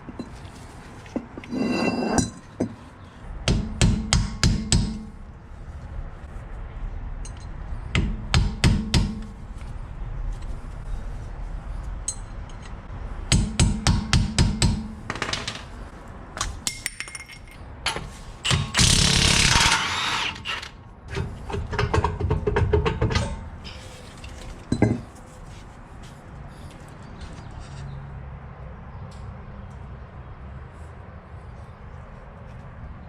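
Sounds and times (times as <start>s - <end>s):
sharp metallic knocks and clanks: 3.4s - 5.2s, 7.3s - 9.4s, 12.1s - 15.8s, 16.4s - 20.4s, 21.1s - 23.9s.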